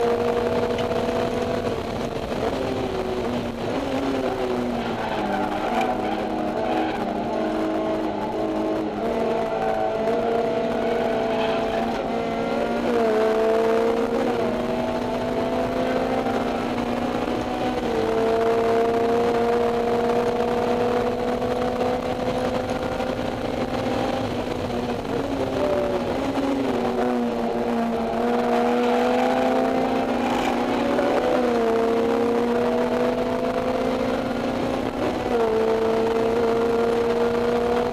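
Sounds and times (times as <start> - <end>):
car engine revving: 0.0 - 37.9.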